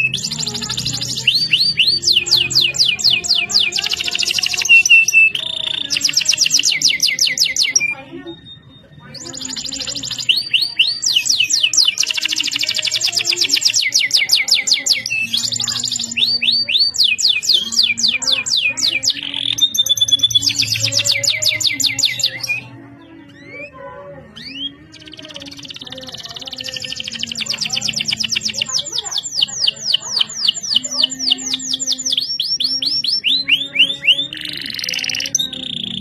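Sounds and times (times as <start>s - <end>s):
canary singing trills: 0.0s - 36.0s.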